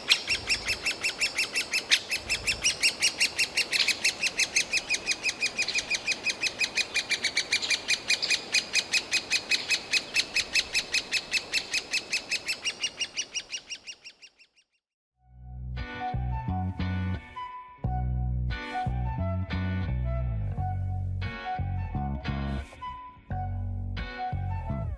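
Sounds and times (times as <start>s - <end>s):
woodpecker nestlings begging calls: 0.0s - 14.5s.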